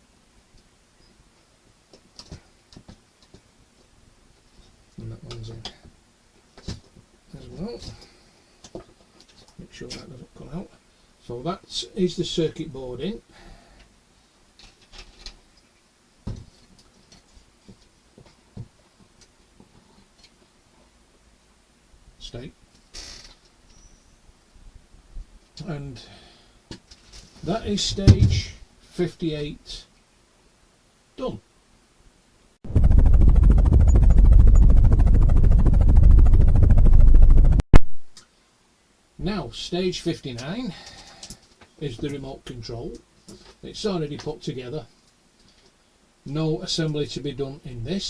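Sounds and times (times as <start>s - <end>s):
helicopter rotor chopping: 32.6s - 37.6s.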